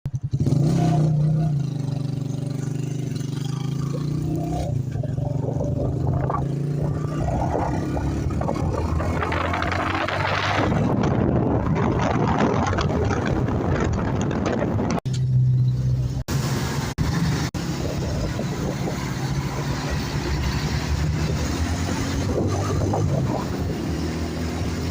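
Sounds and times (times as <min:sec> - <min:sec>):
motorcycle engine running: 0:00.1 - 0:15.0.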